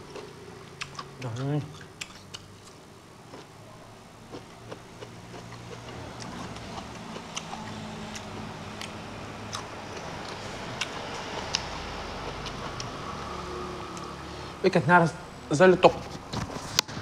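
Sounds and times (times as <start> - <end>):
close chewing: 0.0 - 3.5, 4.3 - 13.0.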